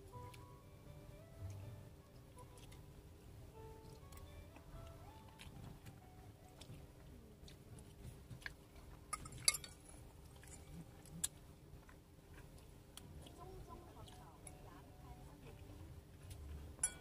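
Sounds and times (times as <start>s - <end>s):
person chewing food: 1.5s - 2.8s, 3.6s - 14.6s, 15.4s - 16.8s
metal fork clinking on bowl: 9.1s - 10.7s.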